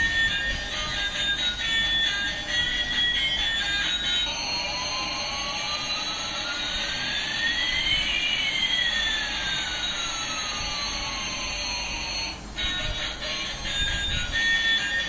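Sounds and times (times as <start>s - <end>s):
whistling tones gliding: 0.0s - 11.4s.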